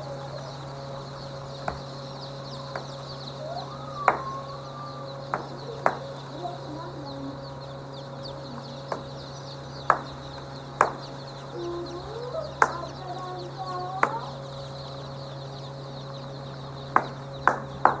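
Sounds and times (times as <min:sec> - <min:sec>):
chickens clucking: 0:00.0 - 0:18.0
steady low hum: 0:00.0 - 0:18.0
sharp taps: 0:01.6 - 0:01.9, 0:02.7 - 0:03.1, 0:04.0 - 0:04.4, 0:05.3 - 0:06.1, 0:09.8 - 0:11.3, 0:12.6 - 0:13.0, 0:14.0 - 0:14.3, 0:16.9 - 0:18.0.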